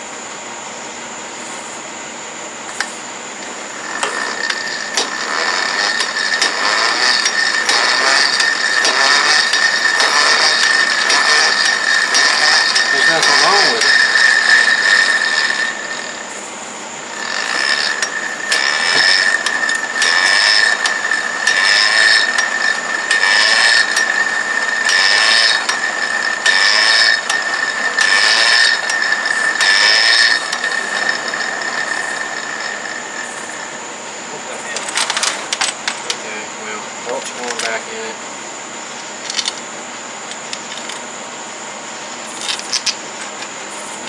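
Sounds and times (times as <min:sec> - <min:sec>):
steady high tone: 0:03.4 - 0:34.8
hand ratchet clicking: 0:03.8 - 0:16.2, 0:17.2 - 0:33.7.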